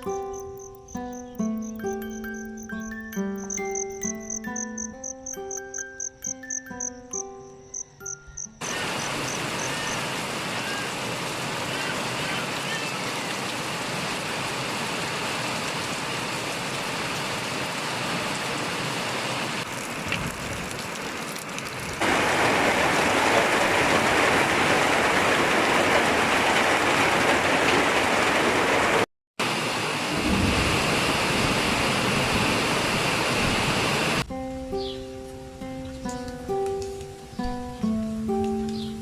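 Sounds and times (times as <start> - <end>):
heavy rain falling: 8.6 - 34.3.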